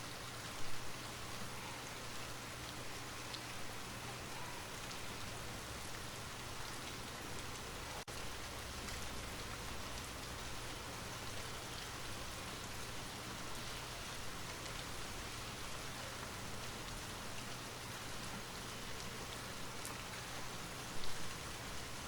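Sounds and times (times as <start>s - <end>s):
light rain hiss: 0.0s - 22.0s
raindrop ticks: 6.7s - 13.7s.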